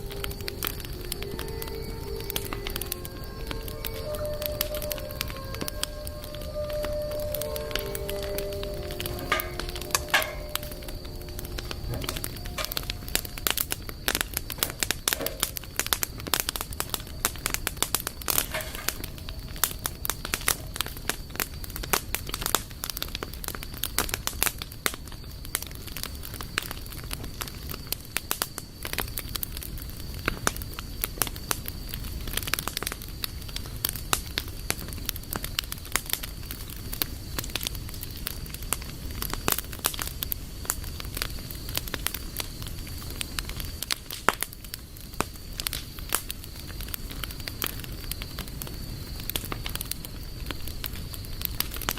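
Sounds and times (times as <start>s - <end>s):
campfire crackling and popping: 0.0s - 51.9s
low rumble of fire: 0.0s - 51.9s
faint high tone: 1.4s - 13.7s.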